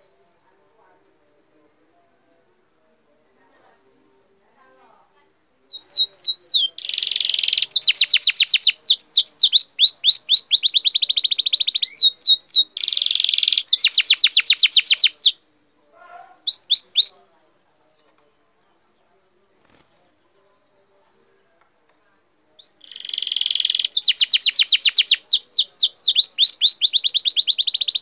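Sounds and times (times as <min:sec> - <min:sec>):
songbird singing trills: 0:05.7 - 0:15.8, 0:16.4 - 0:17.3, 0:22.5 - 0:28.0.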